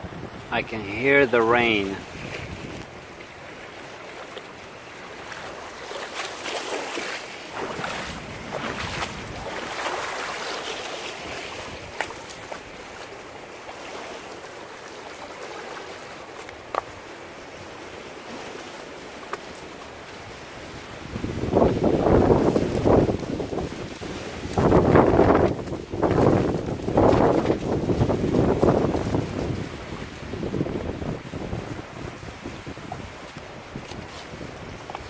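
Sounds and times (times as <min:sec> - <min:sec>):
wind gusts on microphone: 0:00.0 - 0:13.1, 0:19.9 - 0:35.0
heavy rain falling: 0:21.4 - 0:32.9.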